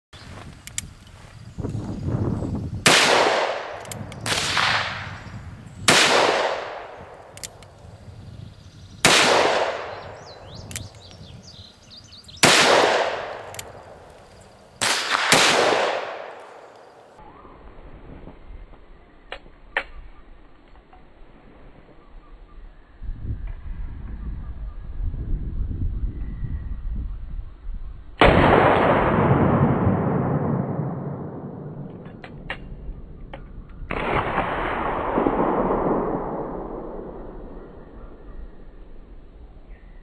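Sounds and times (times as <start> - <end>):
revolver shots echoing: 2.9 - 7.4, 8.9 - 11.3, 12.4 - 17.2.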